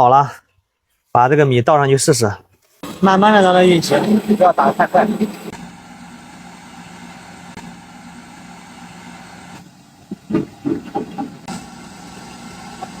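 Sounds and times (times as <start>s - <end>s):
rice mill humming: 2.8s - 10.1s, 11.3s - 13.0s
irregular knocks and thuds: 10.1s - 11.5s.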